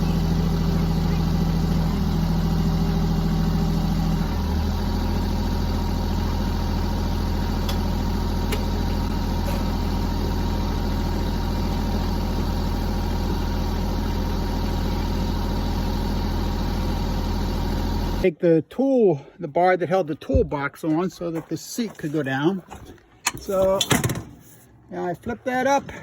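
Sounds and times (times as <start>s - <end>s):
diesel tractor engine idling: 0.0s - 18.3s.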